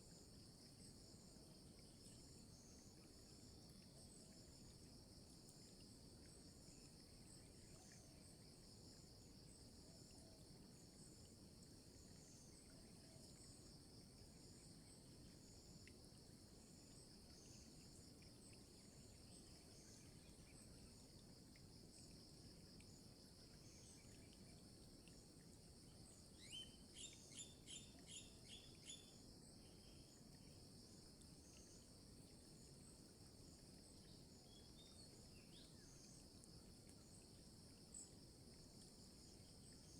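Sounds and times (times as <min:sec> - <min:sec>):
insect chorus buzzing: 0:25.6 - 0:39.9
bird chirps: 0:26.4 - 0:29.1.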